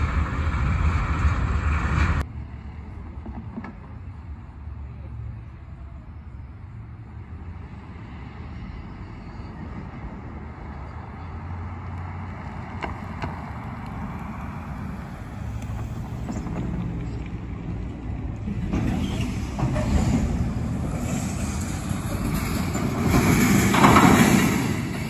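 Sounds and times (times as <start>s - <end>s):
low vehicle rumble: 0.0s - 25.0s.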